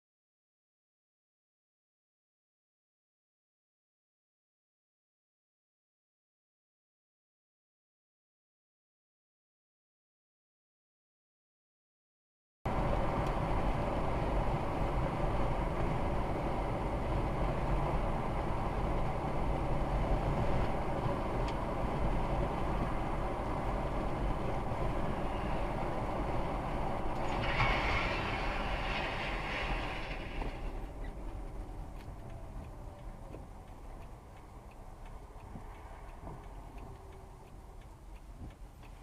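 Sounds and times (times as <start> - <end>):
vehicle road and engine noise: 12.7 - 39.0.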